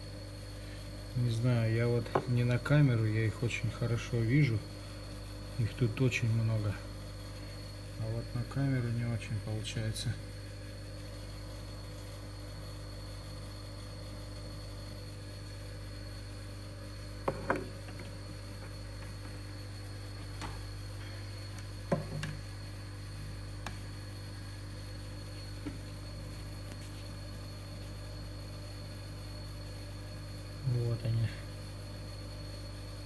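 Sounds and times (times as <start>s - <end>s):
faint high whine: 0.0s - 33.0s
mains hum: 0.0s - 33.0s
soft knocks and clicks: 21.9s - 22.4s.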